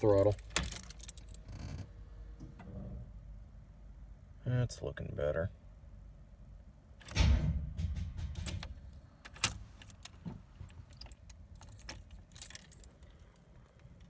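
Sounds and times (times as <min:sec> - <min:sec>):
keys jangling: 0:00.0 - 0:01.5, 0:09.3 - 0:14.0.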